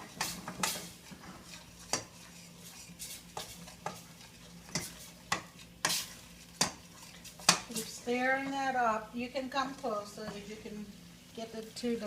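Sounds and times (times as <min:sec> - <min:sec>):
utensil scraping frying pan: 0:00.0 - 0:08.8
faint sizzle in pan: 0:00.0 - 0:12.0.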